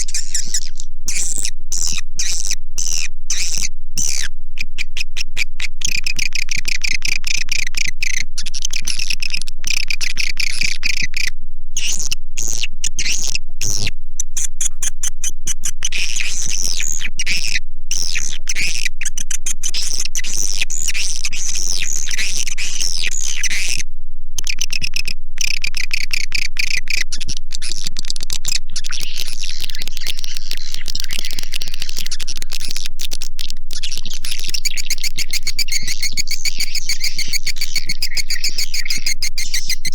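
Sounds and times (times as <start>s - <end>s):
swiftlets twittering chirps: 0.0s - 4.3s, 25.4s - 39.9s.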